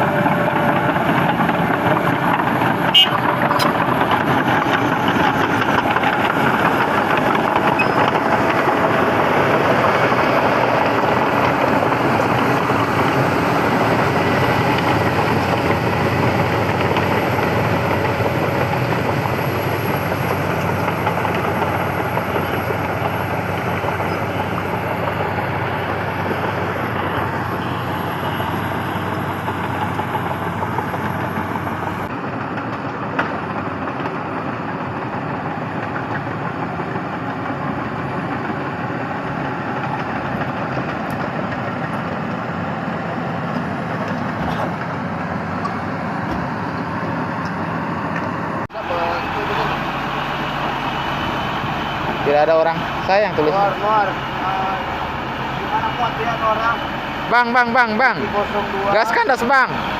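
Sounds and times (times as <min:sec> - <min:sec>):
machine engine running: 0:00.0 - 0:59.9.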